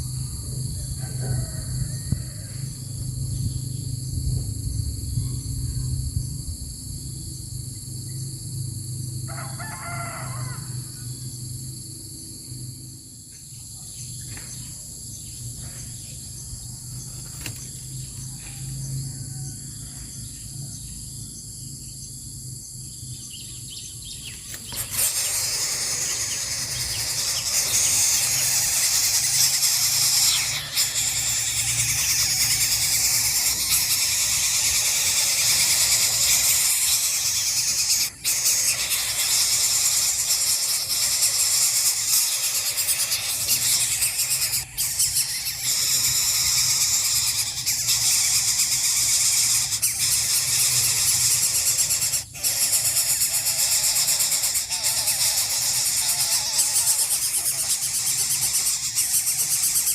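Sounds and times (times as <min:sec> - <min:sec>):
high insect drone: 0:00.0 - 0:59.9
harsh hissing squeal: 0:24.5 - 0:59.9.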